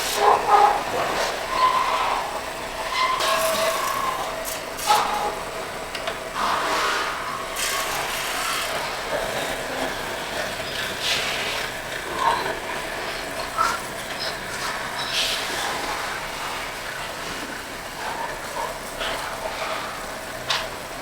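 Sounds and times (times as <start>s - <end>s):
hand tool scraping metal: 0.0s - 5.4s
metal lathe humming: 0.0s - 21.0s.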